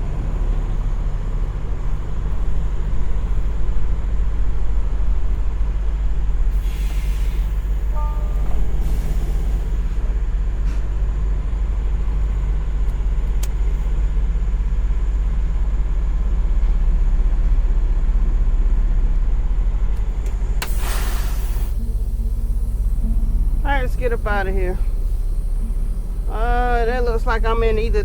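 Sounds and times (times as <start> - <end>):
truck diesel engine idling: 0.0 - 28.0
air hissing burst: 6.5 - 8.0, 20.6 - 23.7.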